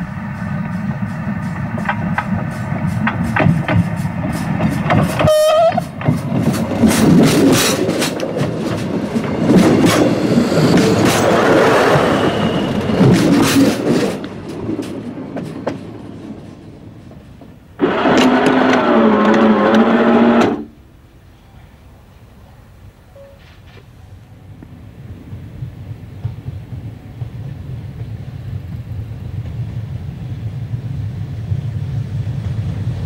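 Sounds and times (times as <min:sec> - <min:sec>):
train wheels clacking over rails: 0:00.0 - 0:20.7, 0:25.1 - 0:33.0
train horn blast: 0:05.2 - 0:05.9.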